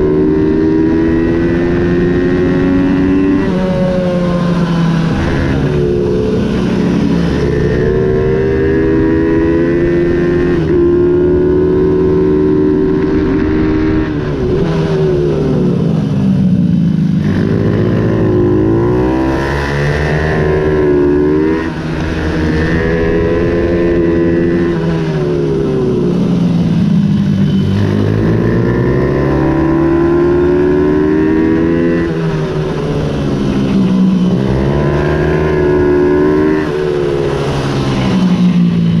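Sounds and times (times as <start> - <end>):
minibike engine revving: 17.1 - 39.0.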